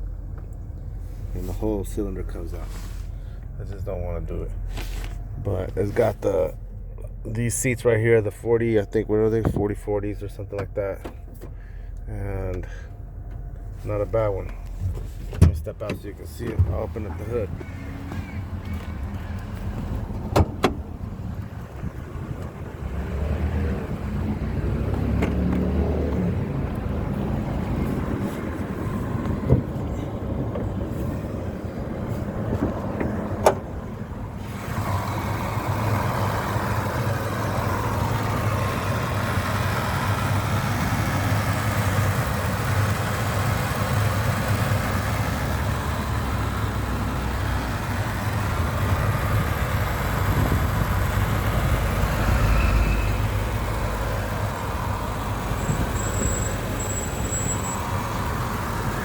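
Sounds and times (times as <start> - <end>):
truck engine idling: 0.0 - 59.0
sharp clunks: 20.1 - 20.9, 32.5 - 33.7.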